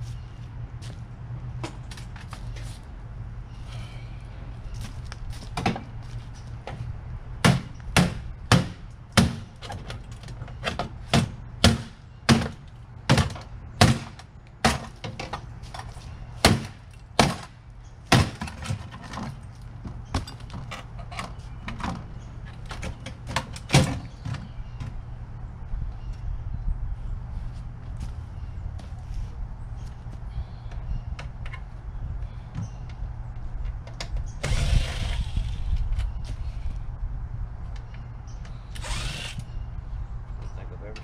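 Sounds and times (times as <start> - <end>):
sharp knocks and bangs: 7.4 - 9.5, 10.7 - 15.4, 16.4 - 19.2
steady low hum: 19.1 - 41.0.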